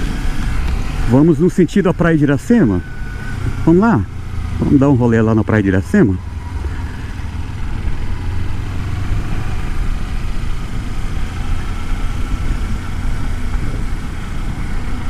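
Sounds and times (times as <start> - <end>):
wind noise: 0.0 - 5.0, 6.2 - 15.0
motorcycle engine running: 0.0 - 15.0.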